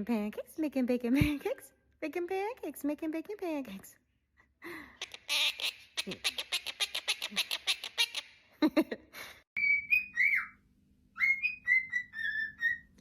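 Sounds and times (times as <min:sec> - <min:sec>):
parrot whistling notes: 0:09.6 - 0:13.0.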